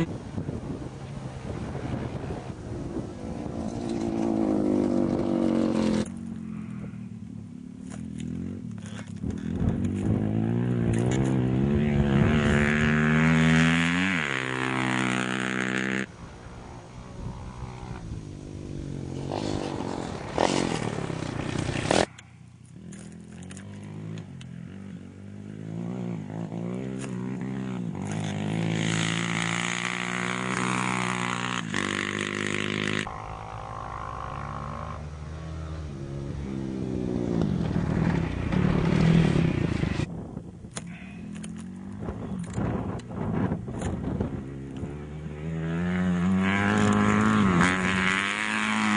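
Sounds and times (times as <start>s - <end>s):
motorcycles and quads racing past: 0.0s - 48.9s.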